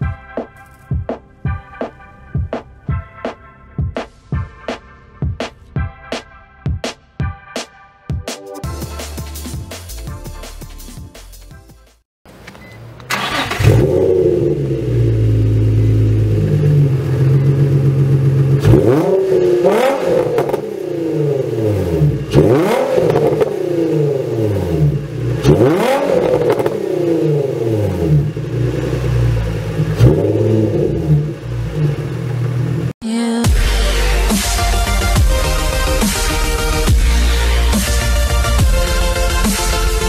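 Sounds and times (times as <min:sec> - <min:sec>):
car engine idling and revving: 0:12.3 - 0:40.0.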